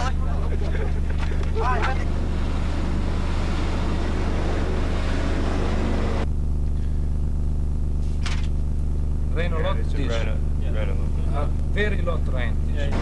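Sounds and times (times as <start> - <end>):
dense noisy rush: 0.0 - 8.1
rally car engine running: 0.0 - 13.0
steady low hum: 0.0 - 13.0.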